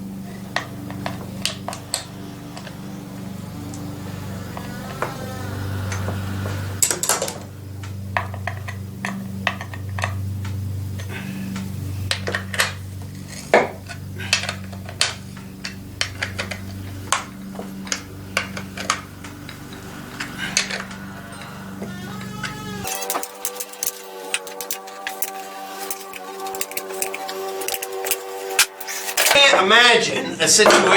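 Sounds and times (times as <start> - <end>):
steady low hum: 0.0 - 29.4
metal clinks and clicks: 12.1 - 29.4.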